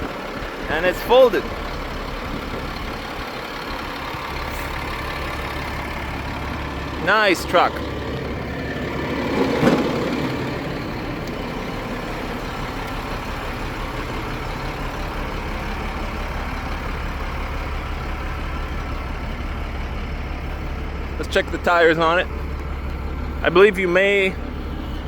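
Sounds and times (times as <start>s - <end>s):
diesel truck engine idling: 0.0s - 25.0s
loud clunk: 9.3s - 11.4s.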